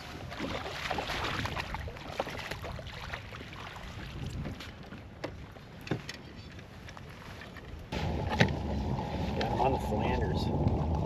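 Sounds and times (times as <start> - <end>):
wind on the microphone: 0.0 - 3.0, 3.8 - 4.7, 7.9 - 11.0
water splashing around a kayak: 0.0 - 11.0.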